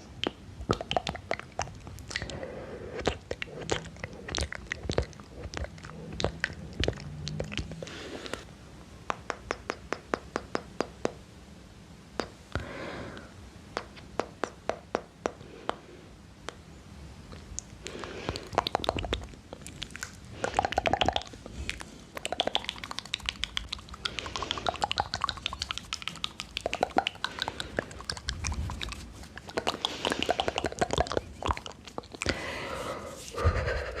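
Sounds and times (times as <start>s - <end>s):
wet mouth clicks and lip smacks: 0.2s - 2.4s, 3.0s - 8.4s, 9.1s - 11.2s, 12.2s - 12.6s, 17.3s - 32.4s.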